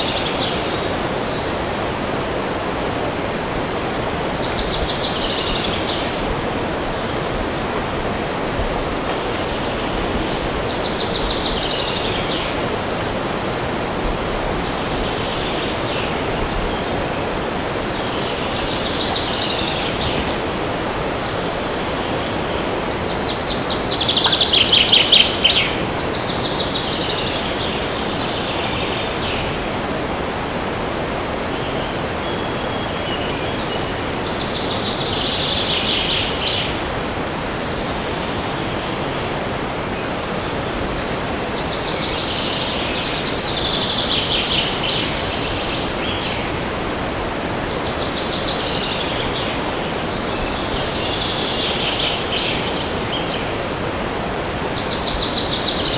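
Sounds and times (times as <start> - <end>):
wind rushing through trees: 0.0 - 55.9
songbird trilling: 21.4 - 29.5.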